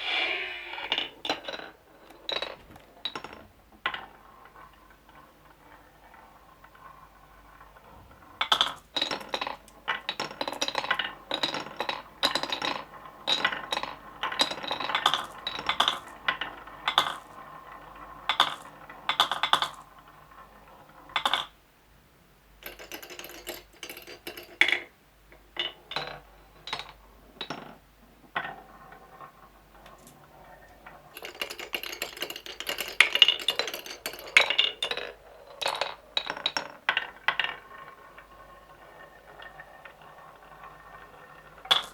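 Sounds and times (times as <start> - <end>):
marbles clicking through marble run: 29.8 - 41.9.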